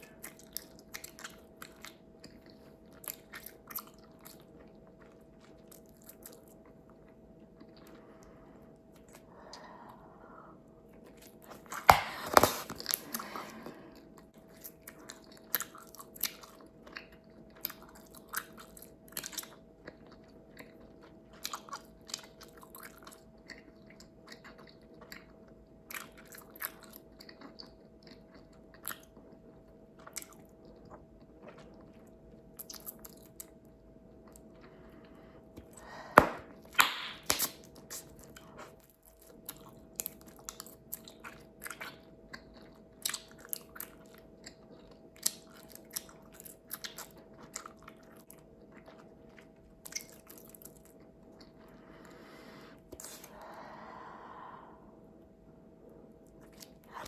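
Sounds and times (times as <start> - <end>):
bubblegum chewing snaps: 11.2 - 13.7, 35.6 - 38.4.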